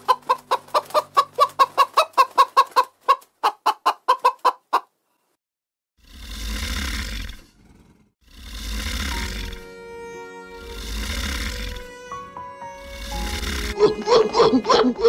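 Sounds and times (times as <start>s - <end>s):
chickens clucking: 0.0s - 4.9s, 13.7s - 15.0s
long hoarse hiss: 10.5s - 12.0s.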